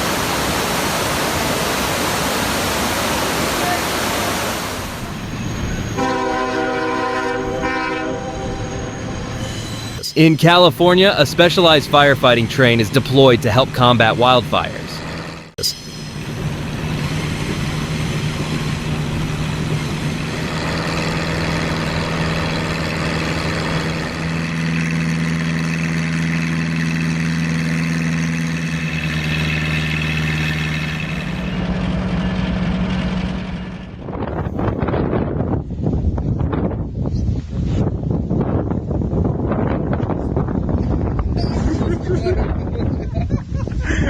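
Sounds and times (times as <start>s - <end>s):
heavy diesel engine running: 0.0s - 7.0s, 10.0s - 34.8s.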